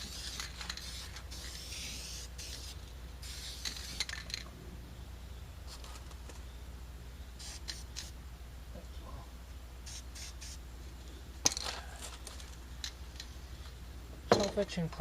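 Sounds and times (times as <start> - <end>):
aerosol can spraying: 0.0 - 4.1, 7.4 - 8.1, 9.8 - 10.6.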